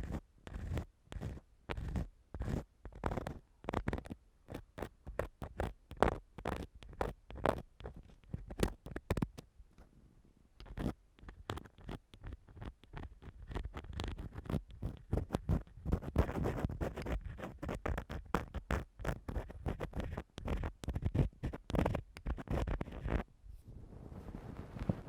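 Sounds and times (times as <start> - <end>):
tool scratching a microphone: 0.0 - 9.4, 10.6 - 23.2.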